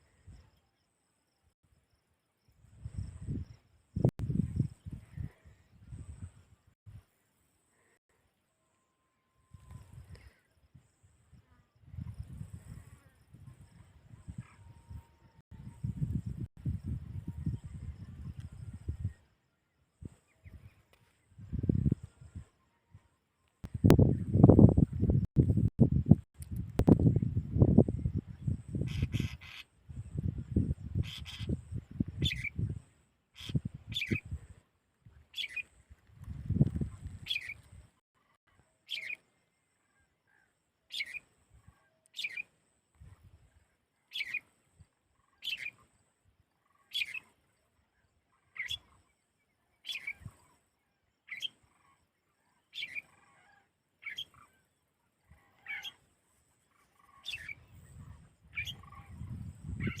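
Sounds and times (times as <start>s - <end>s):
small bird calling: 28.7s - 29.8s, 30.9s - 32.6s, 33.4s - 34.3s, 35.3s - 35.7s, 37.2s - 37.6s, 40.3s - 42.5s, 44.1s - 44.5s, 45.2s - 45.8s, 46.6s - 47.4s, 51.3s - 54.7s, 55.3s - 56.1s.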